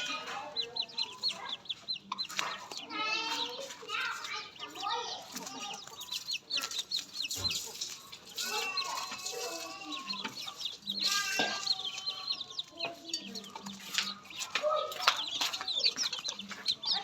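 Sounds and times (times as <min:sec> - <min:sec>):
poultry clucking: 0:00.0 - 0:17.0
rapid high-pitched peeps: 0:04.7 - 0:17.0.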